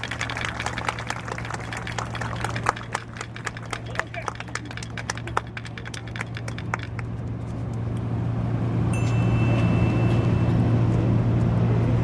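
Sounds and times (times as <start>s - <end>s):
low engine hum: 0.0s - 12.0s
high ringing tone: 8.9s - 11.2s.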